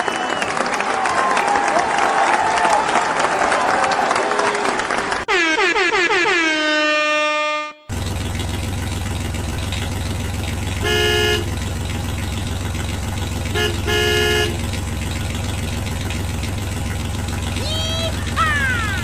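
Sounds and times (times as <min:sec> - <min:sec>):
horn blasts: 0:05.3 - 0:07.9, 0:10.8 - 0:11.7, 0:13.4 - 0:14.8
vehicle engine running: 0:07.9 - 0:19.0.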